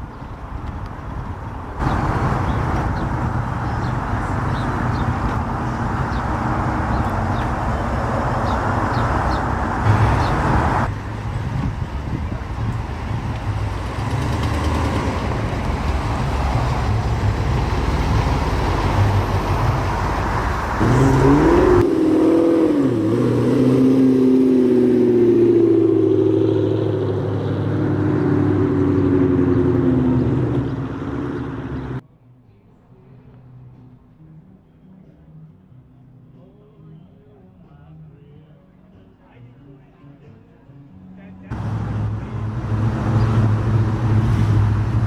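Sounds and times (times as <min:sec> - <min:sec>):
car engines running: 0:00.0 - 0:32.0, 0:41.5 - 0:45.0
engine note rising and falling: 0:01.8 - 0:32.0, 0:41.5 - 0:45.0.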